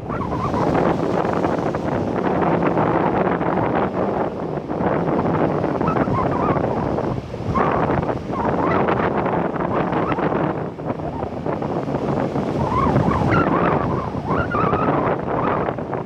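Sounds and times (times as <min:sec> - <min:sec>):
heavy surf breaking: 0:00.0 - 0:15.4
wind buffeting microphone: 0:00.0 - 0:16.0.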